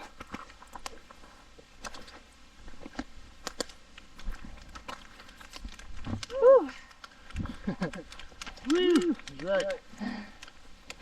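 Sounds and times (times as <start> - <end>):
footsteps on rocky trail: 0.0 - 11.0.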